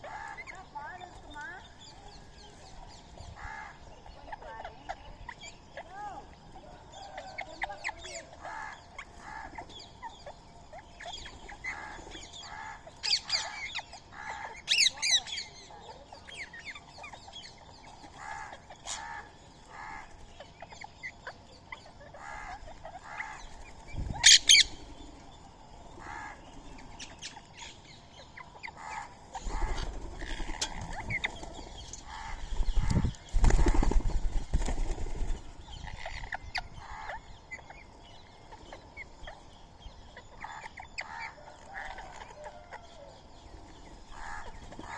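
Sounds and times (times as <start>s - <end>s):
birds calling: 0.0s - 44.9s
wing flapping: 29.4s - 35.6s.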